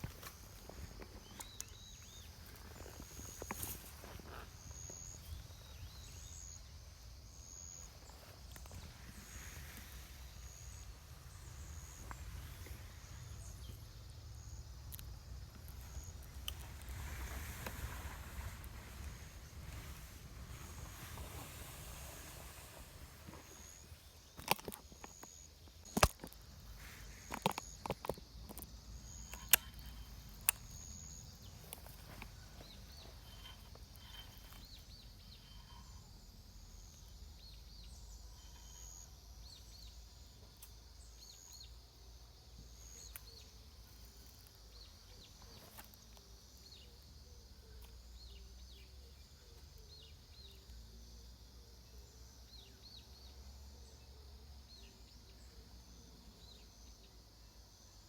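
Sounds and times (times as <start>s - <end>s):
faint high chirping: 0.0s - 58.0s
low wind rumble: 0.4s - 24.6s.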